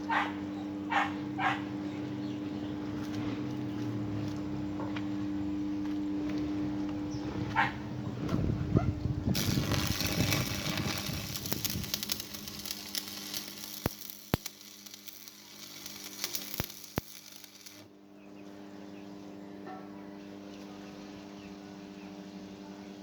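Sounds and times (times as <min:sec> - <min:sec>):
low electrical hum: 0:00.0 - 0:23.0
arc welding crackling: 0:09.2 - 0:17.9.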